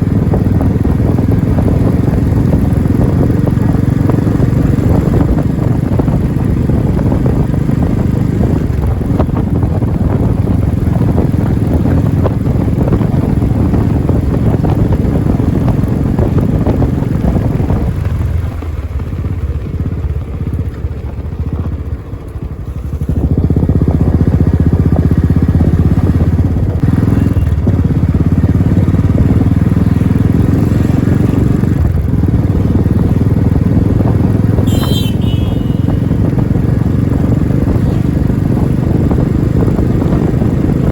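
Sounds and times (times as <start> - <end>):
motorcycle engine thumping: 15.8 - 40.8.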